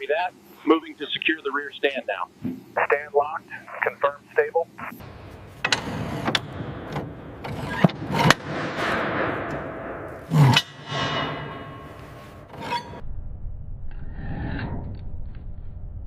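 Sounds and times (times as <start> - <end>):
equipment scraping: 5.0 - 13.0
equipment knocking and clanking: 5.6 - 12.2.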